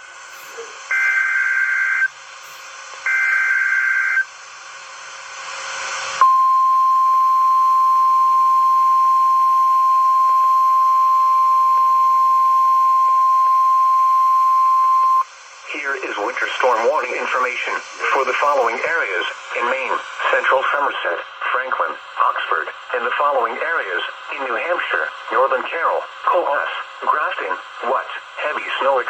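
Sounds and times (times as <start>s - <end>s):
steady warning alarm tone: 0.0s - 4.4s, 6.2s - 15.4s
hiss: 4.5s - 6.2s.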